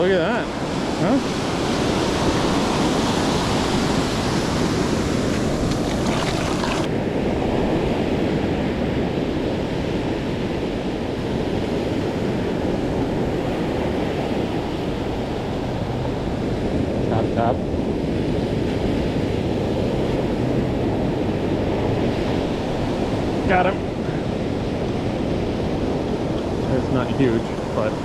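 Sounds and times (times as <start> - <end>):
ocean surf washing on beach: 0.5 - 6.9.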